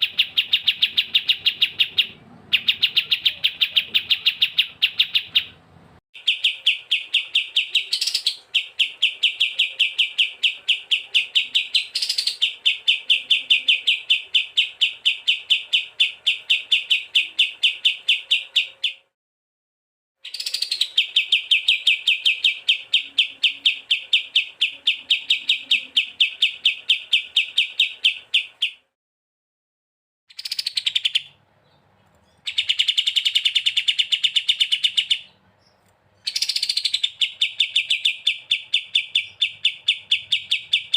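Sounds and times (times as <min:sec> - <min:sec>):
songbird chirping: 0:00.0 - 0:19.1, 0:20.2 - 0:29.0, 0:30.3 - 0:40.9.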